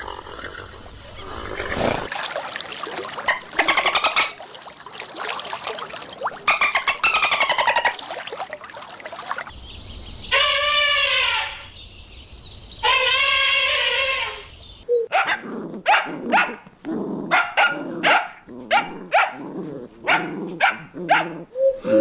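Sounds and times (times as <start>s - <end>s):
long steady animal calls: 0.0s - 1.8s, 10.0s - 11.8s, 12.8s - 15.1s
quavering animal calls: 10.3s - 11.8s, 12.8s - 15.1s.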